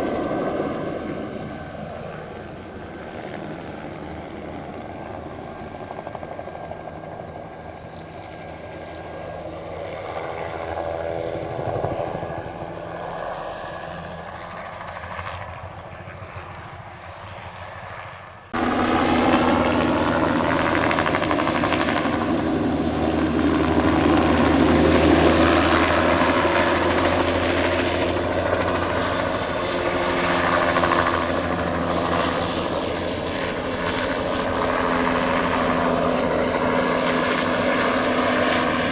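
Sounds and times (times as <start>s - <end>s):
helicopter rotor and engine: 0.0s - 38.9s
turbine whine: 18.5s - 38.9s.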